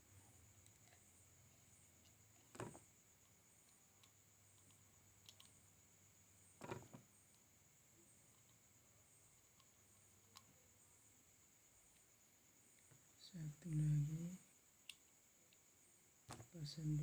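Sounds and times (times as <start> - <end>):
faint clicks of small parts: 0.6 - 1.1, 2.0 - 5.7, 8.2 - 8.6, 9.3 - 10.6, 11.9 - 12.1, 14.8 - 15.7.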